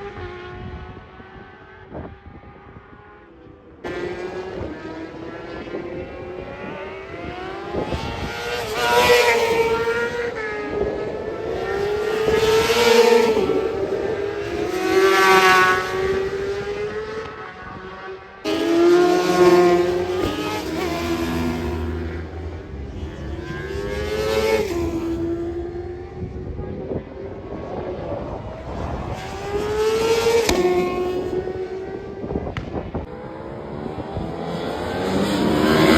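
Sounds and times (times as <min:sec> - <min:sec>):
racing motorcycles passing: 0:00.0 - 0:35.9
engines revving high: 0:03.8 - 0:35.9.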